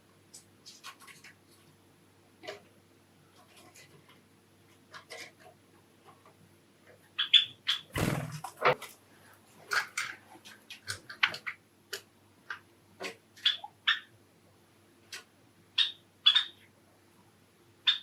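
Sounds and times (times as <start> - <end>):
sparrows chirping: 7.1 - 7.9, 15.8 - 16.6.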